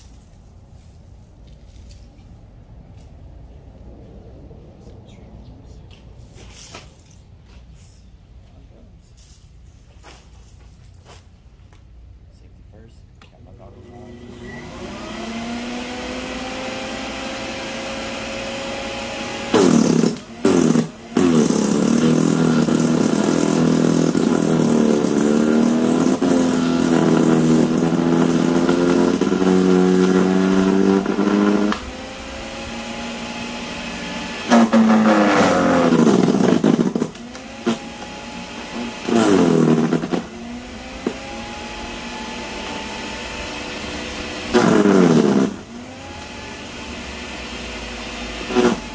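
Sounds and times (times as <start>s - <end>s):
electric wood chipper running: 13.7s - 48.9s
wood chipper chipping branches: 13.8s - 48.9s.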